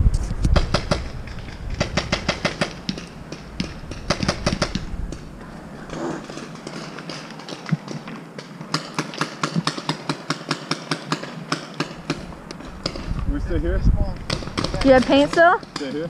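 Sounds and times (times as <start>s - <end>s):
paintball markers firing: 6.3s - 13.1s, 14.2s - 16.0s.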